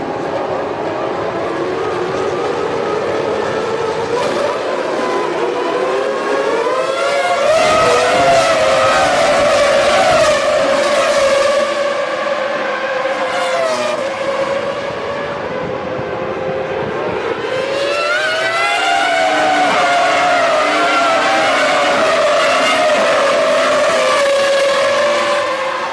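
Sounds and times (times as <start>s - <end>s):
racing car engines whining: 0.0s - 25.9s.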